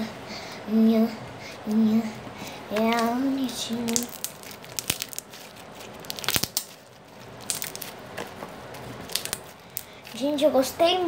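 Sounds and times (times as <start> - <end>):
slime crackling and popping: 2.7 - 10.2.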